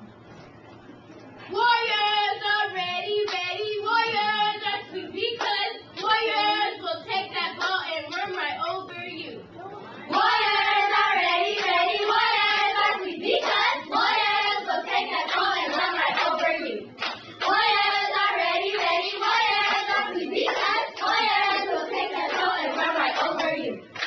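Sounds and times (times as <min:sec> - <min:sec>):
hand claps: 0:03.2 - 0:03.4, 0:05.4 - 0:06.2, 0:15.3 - 0:17.7, 0:19.6 - 0:24.0
cheerleaders chanting in unison: 0:10.1 - 0:24.0.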